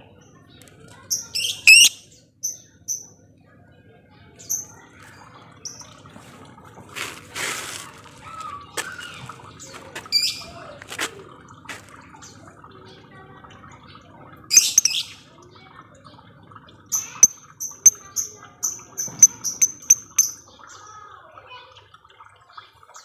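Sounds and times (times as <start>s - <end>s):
lovebirds chirping and squawking: 1.1s - 3.1s, 5.6s - 6.0s, 9.1s - 10.6s, 14.5s - 15.2s, 16.9s - 20.8s.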